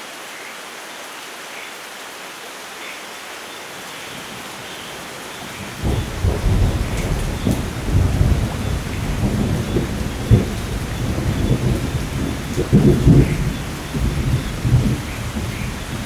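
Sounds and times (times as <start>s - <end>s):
steady rain falling: 0.0s - 16.0s
deep rolling thunder: 5.5s - 16.0s.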